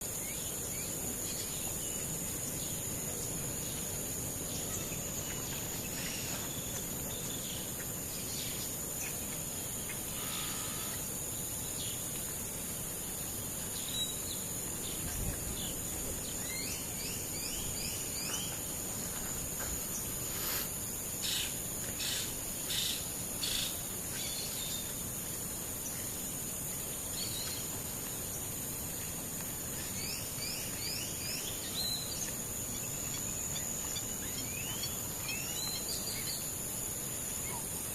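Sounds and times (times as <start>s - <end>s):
high-pitched insect drone: 0.1s - 29.0s.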